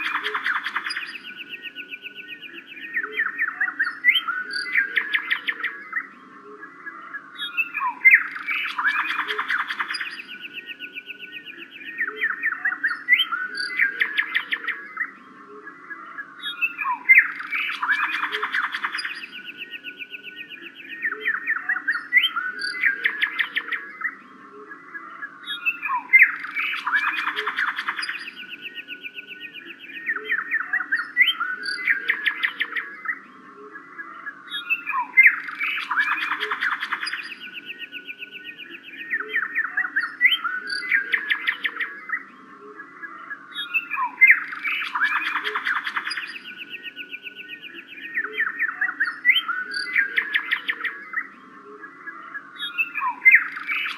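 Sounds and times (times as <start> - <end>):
birds chirping and trilling: 0.0 - 53.9.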